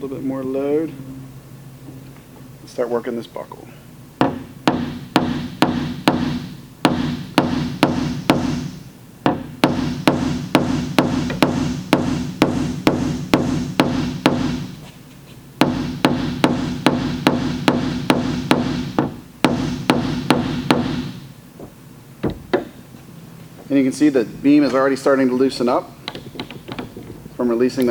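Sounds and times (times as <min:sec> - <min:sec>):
hammer tapping steel panel: 0:09.3 - 0:14.7.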